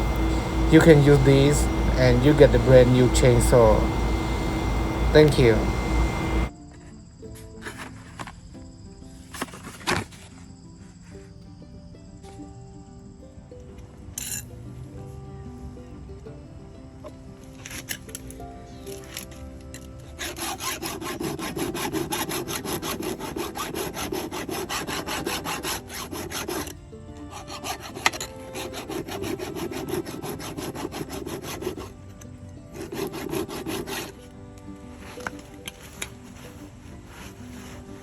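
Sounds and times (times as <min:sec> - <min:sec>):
file rasping on chainsaw chain: 0:00.0 - 0:06.5, 0:19.8 - 0:32.1, 0:32.7 - 0:34.3, 0:35.0 - 0:38.0
background music: 0:00.0 - 0:38.0.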